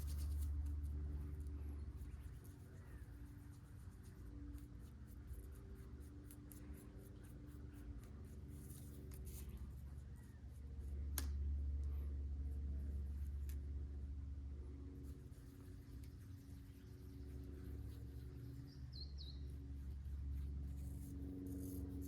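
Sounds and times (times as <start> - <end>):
steady low hum: 0.0 - 22.0
scratchy rubbing strokes: 15.0 - 22.0.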